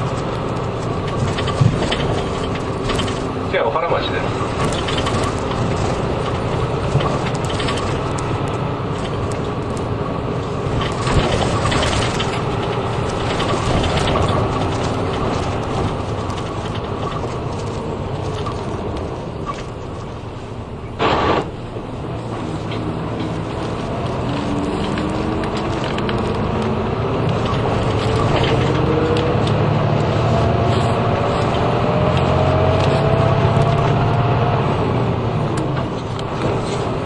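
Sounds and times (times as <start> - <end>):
bus engine and road hum: 0.0 - 37.0
interior fittings rattling: 4.3 - 8.2
short loud burst of noise: 21.0 - 21.6.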